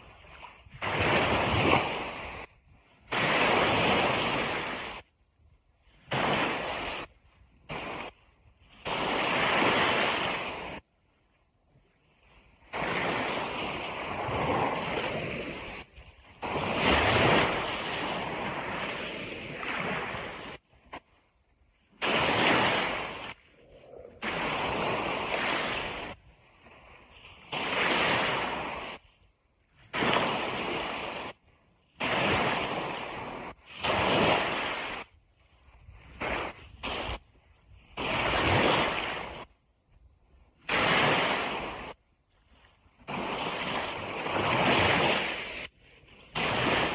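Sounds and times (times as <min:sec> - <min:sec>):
ocean surf washing in: 0:21.9 - 0:26.2.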